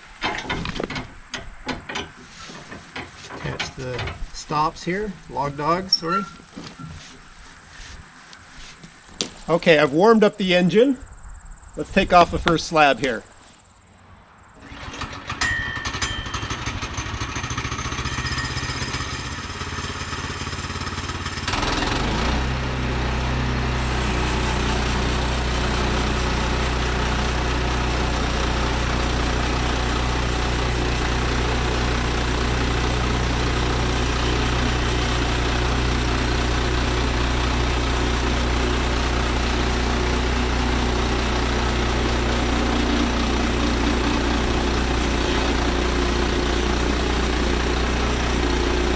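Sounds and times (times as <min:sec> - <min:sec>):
sawmill engine throttling up: 0:14.6 - 0:48.9.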